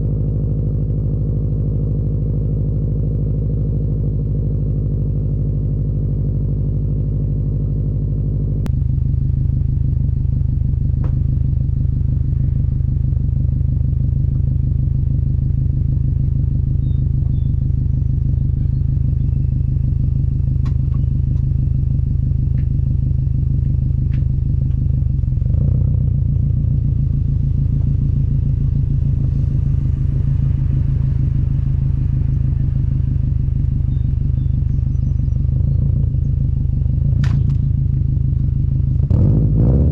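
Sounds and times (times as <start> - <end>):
car exhaust rumble: 0.0 - 39.9.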